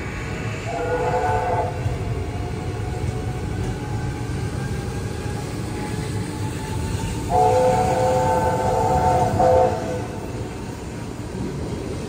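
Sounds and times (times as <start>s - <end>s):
train coaches rumbling past: 0.0s - 12.0s
multi-tone train horn: 0.6s - 3.1s, 5.7s - 10.8s.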